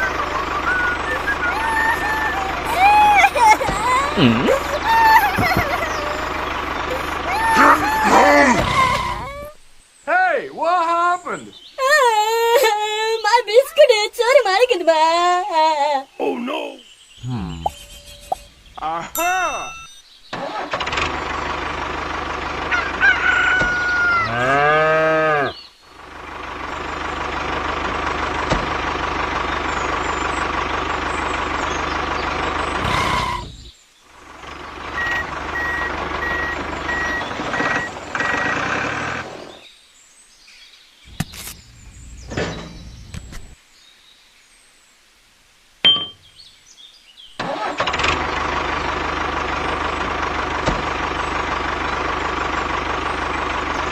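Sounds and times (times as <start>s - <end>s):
chicken call: 0.0s - 9.6s, 17.2s - 18.5s, 22.7s - 24.6s
tractor engine running: 0.0s - 9.7s, 17.5s - 24.6s, 25.9s - 39.6s, 41.1s - 43.6s, 47.4s - 53.9s
short even beeps: 17.5s - 18.5s.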